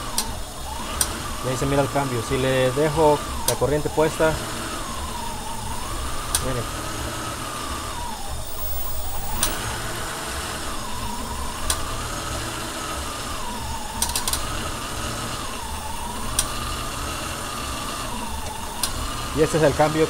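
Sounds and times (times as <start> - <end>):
car engine idling roughly: 0.0 - 20.0
sharp clicks: 8.5 - 9.7.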